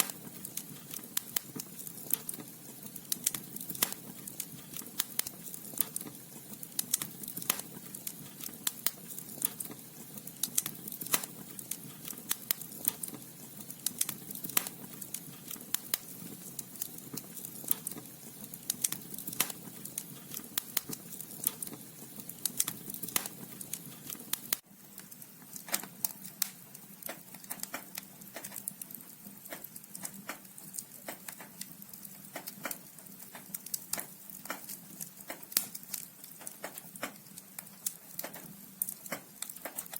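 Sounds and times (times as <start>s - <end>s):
logs crackling and popping: 0.0s - 39.9s.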